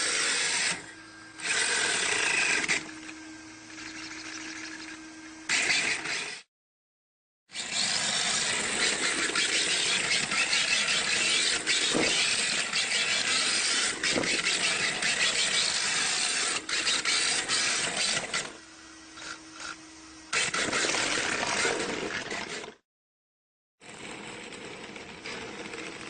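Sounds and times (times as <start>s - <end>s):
rc car tyres hissing and scraping: 5.5s - 6.4s, 7.5s - 18.6s, 19.2s - 22.8s.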